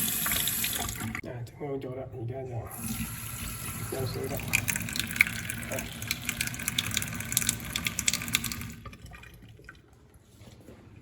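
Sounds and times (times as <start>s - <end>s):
faucet water splashing into sink: 0.0s - 1.2s, 2.7s - 9.8s.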